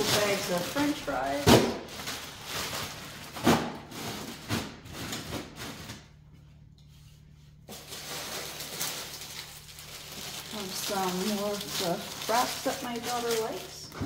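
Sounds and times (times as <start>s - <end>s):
knocks of frozen packages: 0.0s - 6.1s
plastic bags rustling: 0.0s - 6.4s, 7.2s - 14.0s.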